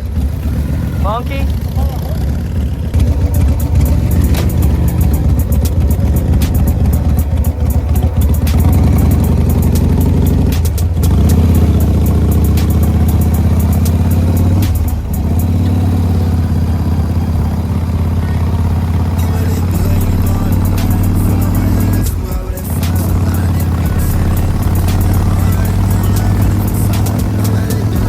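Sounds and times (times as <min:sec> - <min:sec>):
motorcycle engine running: 0:00.0 - 0:28.0
sharp clicks: 0:02.9 - 0:15.8, 0:19.4 - 0:28.0.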